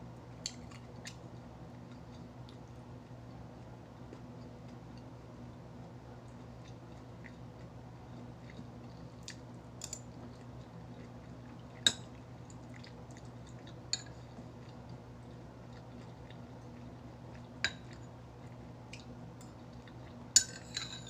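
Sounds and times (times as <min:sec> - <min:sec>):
steady low hum: 0:00.0 - 0:21.0
utensil clinking against a dish: 0:20.3 - 0:21.0.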